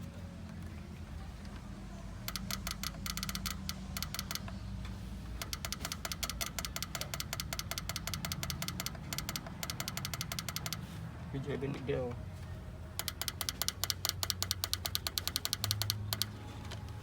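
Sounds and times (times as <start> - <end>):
rapid mechanical clicking: 2.2 - 11.0, 12.9 - 17.0.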